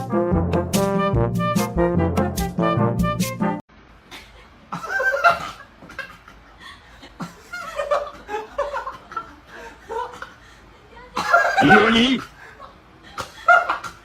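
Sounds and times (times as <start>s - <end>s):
person laughing: 11.2s - 14.0s.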